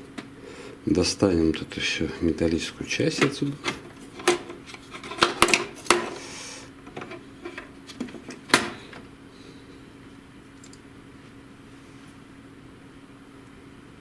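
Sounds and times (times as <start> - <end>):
faint steady hum: 0.0 - 14.0
printer parts clicking and knocking: 3.1 - 6.2, 6.8 - 9.1.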